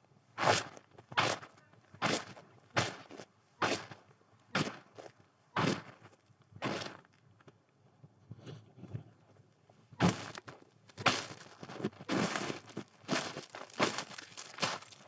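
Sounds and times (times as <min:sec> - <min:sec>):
footsteps in snow: 0:13.1 - 0:15.0.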